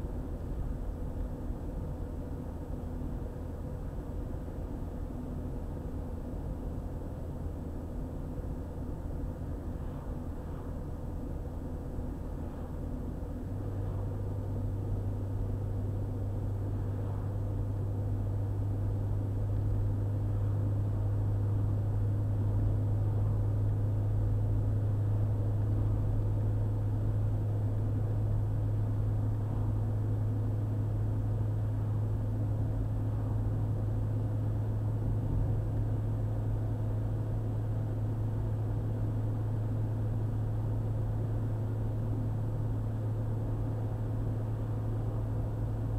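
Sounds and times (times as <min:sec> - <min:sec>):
car engine and road noise: 0:00.0 - 0:45.9.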